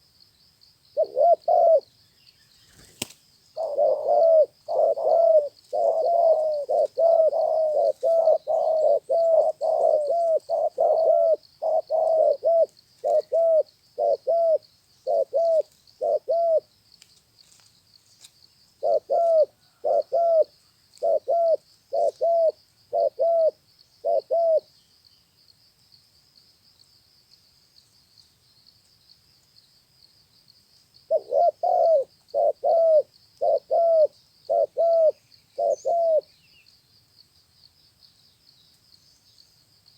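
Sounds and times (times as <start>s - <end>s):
faint high hiss: 0.0s - 19.4s
dove cooing: 1.0s - 1.9s, 2.7s - 16.7s, 18.8s - 24.7s, 31.1s - 36.3s.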